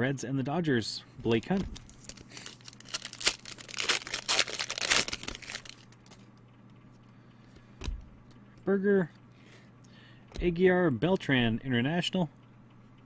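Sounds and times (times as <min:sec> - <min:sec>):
cards crackling and clicking: 0:01.2 - 0:06.4
wrapper crinkling and tearing: 0:01.3 - 0:06.3.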